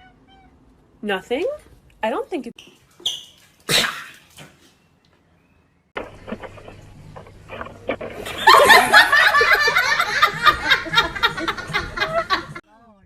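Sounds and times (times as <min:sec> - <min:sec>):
steady low hum: 0:05.8 - 0:12.6
people laughing loudly: 0:08.2 - 0:12.6.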